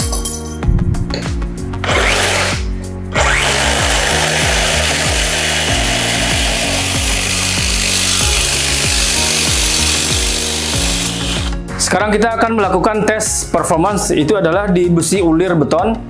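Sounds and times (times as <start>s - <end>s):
background music with low beat: 0.0s - 16.0s
reciprocating saw cutting metal pipe: 1.8s - 11.6s.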